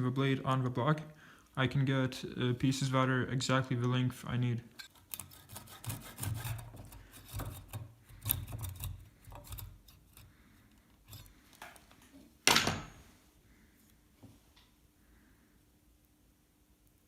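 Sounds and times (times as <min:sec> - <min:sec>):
rasp on wood: 0:05.1 - 0:10.3.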